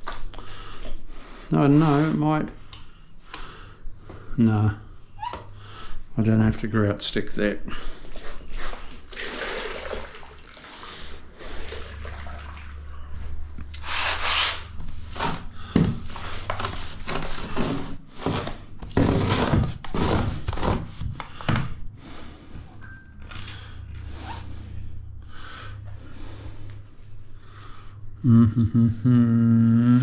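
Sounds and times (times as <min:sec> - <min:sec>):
grout scraped across tiles: 0:13.8 - 0:21.1.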